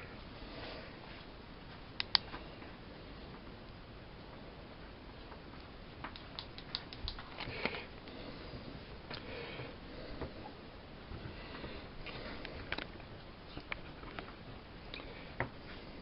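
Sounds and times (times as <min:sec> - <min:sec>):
light clicks: 0:02.0 - 0:02.4.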